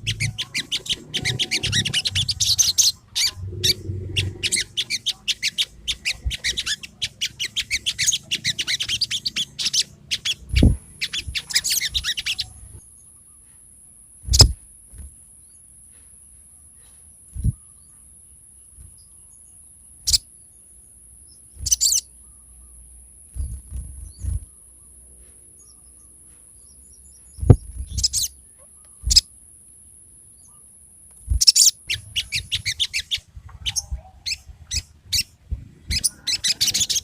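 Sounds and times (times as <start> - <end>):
bird singing chirps and trills: 0.0 - 13.6, 17.3 - 18.1, 18.7 - 29.4, 30.4 - 37.0.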